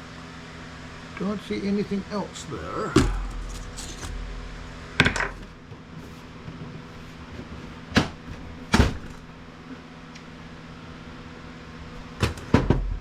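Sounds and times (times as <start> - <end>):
steady low hum: 0.0 - 9.7
knocks of hard parts and tools: 3.0 - 5.8, 12.2 - 13.0.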